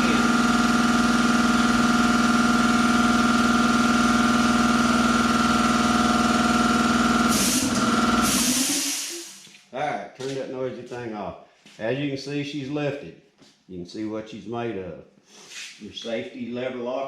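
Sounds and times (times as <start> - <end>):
air compressor running: 0.0 - 9.6.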